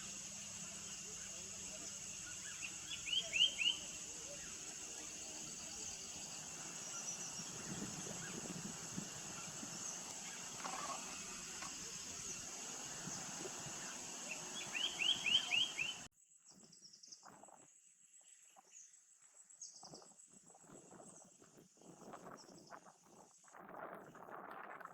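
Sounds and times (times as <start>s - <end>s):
faint high chirps: 0.0s - 16.1s
high insect drone: 0.0s - 16.1s
bird whistles: 2.2s - 5.8s, 11.9s - 16.1s.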